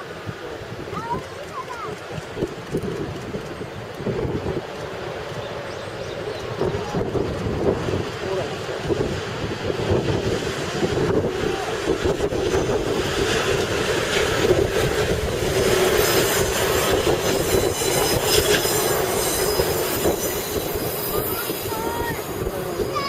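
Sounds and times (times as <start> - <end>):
train wheels rumbling on track: 0.0 - 23.0
rail clatter: 1.0 - 23.0
wheels squealing: 12.4 - 23.0.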